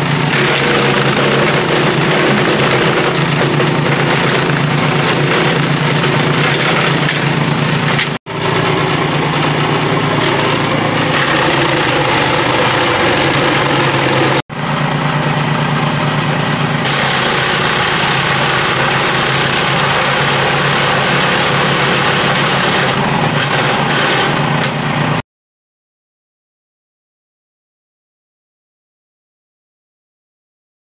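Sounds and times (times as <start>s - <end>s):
wood chipper engine running: 0.0s - 25.2s.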